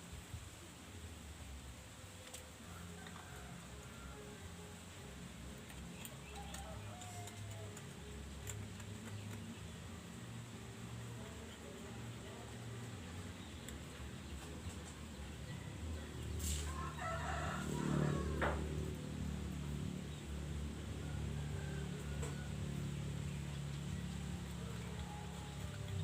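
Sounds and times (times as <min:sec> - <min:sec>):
rooster crowing: 0:06.4 - 0:07.5, 0:16.5 - 0:18.8, 0:21.0 - 0:22.9.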